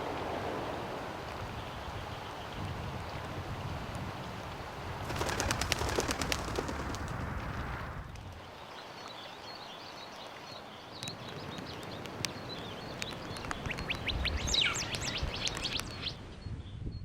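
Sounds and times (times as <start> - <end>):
small birds chirping: 8.4 - 17.0.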